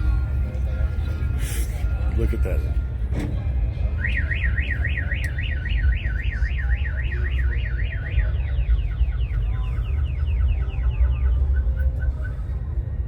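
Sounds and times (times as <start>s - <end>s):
car alarm warbling and chirping: 4.0s - 12.4s.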